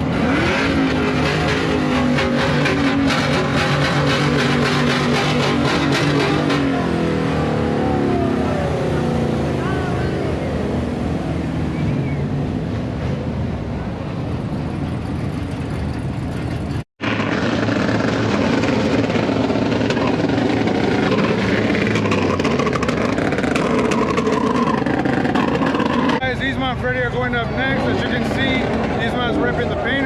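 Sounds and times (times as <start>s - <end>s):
vehicle engines rumbling: 0.0s - 30.0s.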